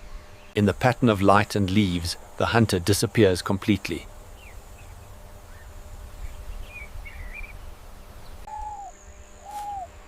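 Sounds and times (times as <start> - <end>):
bird chirps: 4.4 - 9.9.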